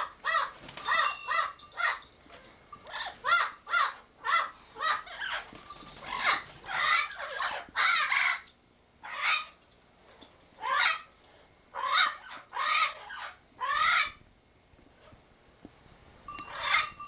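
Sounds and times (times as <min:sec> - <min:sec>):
parrots calling harshly: 0:00.0 - 0:09.6, 0:10.6 - 0:11.1, 0:11.8 - 0:14.2, 0:16.5 - 0:17.0.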